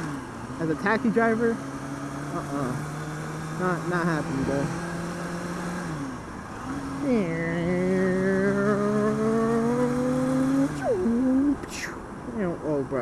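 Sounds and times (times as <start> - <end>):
motorcycle engine accelerating: 0.0 - 11.6.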